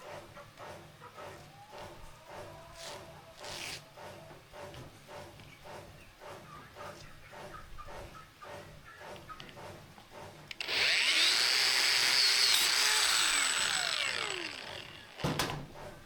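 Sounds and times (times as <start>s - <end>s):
power tool whining: 10.5s - 15.4s.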